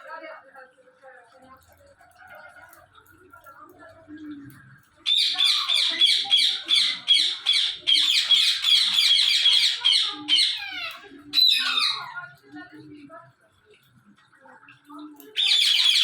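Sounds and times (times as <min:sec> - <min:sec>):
parrot squawking: 0:05.0 - 0:12.3, 0:15.4 - 0:16.0.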